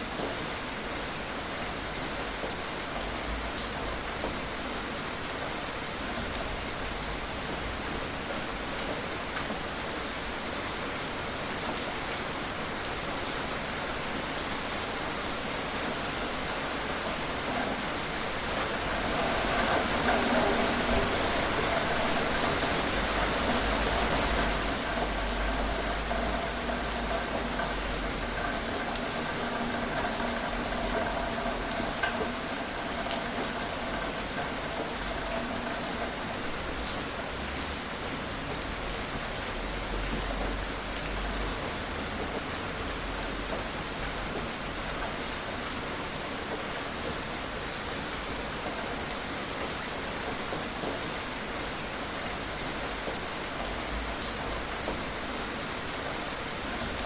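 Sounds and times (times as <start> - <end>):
gentle rain falling: 0.0 - 57.0
raindrops ticking: 15.6 - 57.0.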